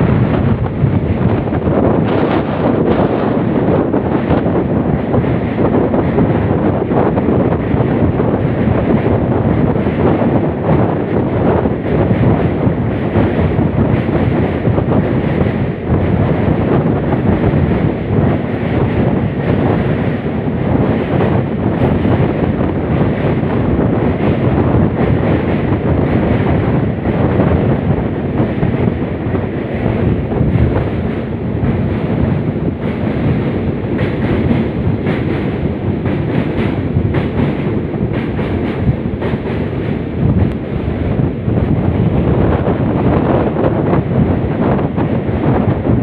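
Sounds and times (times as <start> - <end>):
train rumbling at speed: 0.0 - 46.0
wind buffeting microphone: 0.0 - 46.0
train wheel clicks: 8.9 - 40.7.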